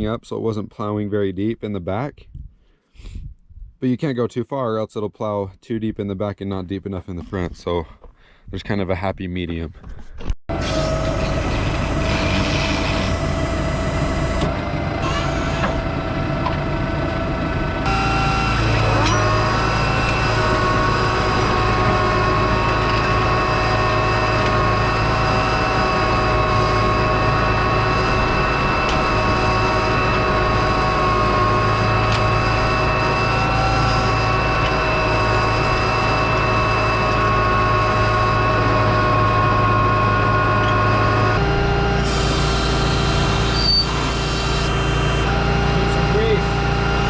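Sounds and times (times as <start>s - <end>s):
tractor engine under load: 9.8s - 47.0s.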